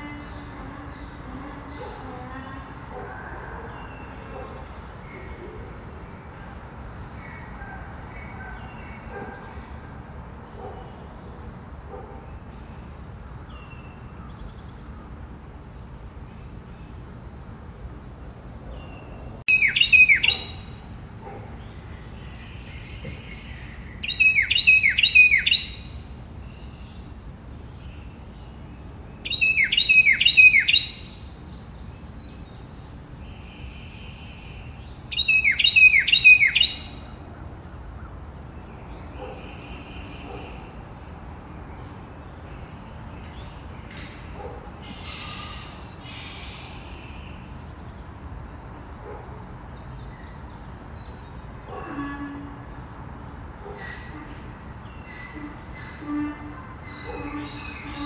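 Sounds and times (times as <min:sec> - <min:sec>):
insect trill: 0:00.0 - 0:58.0
songbird singing whistled notes: 0:18.8 - 0:20.8, 0:21.7 - 0:27.0, 0:29.2 - 0:31.3, 0:33.4 - 0:37.0, 0:54.9 - 0:58.0.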